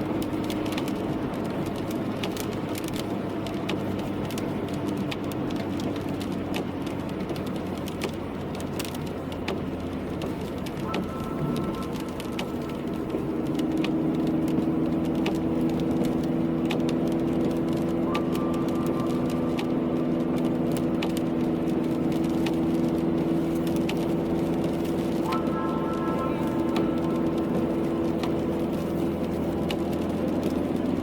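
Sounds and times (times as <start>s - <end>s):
car engine and road hum: 0.0s - 31.0s
raindrops clicking: 0.1s - 31.0s.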